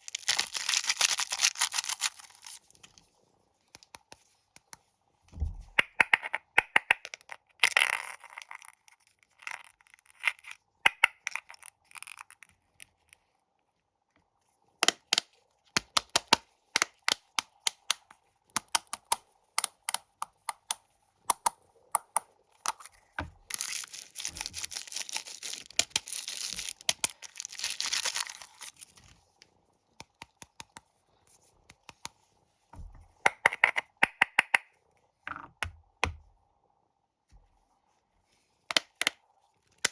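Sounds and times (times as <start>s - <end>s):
plastic wrappers crinkling: 0.0s - 3.0s, 23.4s - 29.2s.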